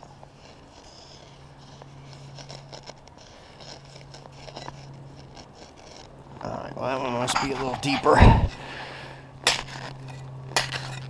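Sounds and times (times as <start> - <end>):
scraping and crunching in frozen ground: 0.0 - 11.0
steady low hum: 0.0 - 11.0.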